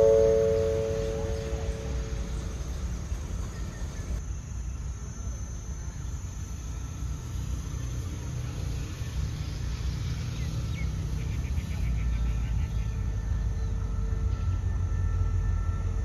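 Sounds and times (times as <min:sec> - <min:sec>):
faint high chirps: 0:00.0 - 0:04.2
diesel train rumbling: 0:00.0 - 0:05.1, 0:06.1 - 0:16.0.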